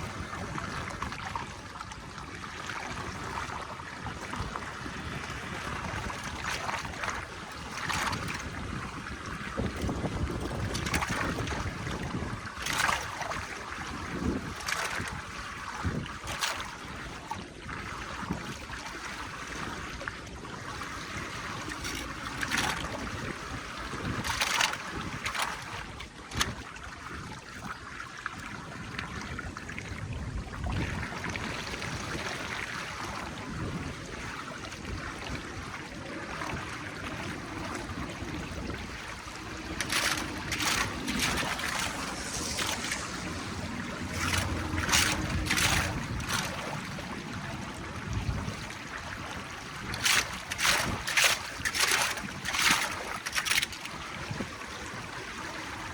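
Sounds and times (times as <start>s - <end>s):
flowing water rushing: 0.0s - 55.9s
wind on microphone: 0.0s - 55.9s
knocks or splashes: 36.3s - 48.9s.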